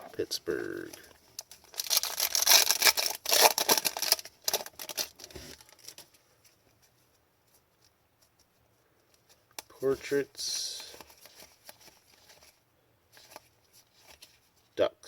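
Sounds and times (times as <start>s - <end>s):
foil wrapper crinkling: 0.8s - 6.2s.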